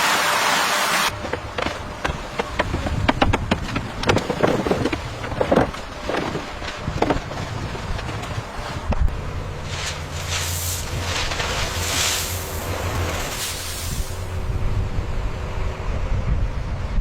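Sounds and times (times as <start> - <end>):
low steady rumble: 1.0 - 17.0
knocks and clanks: 1.1 - 9.0.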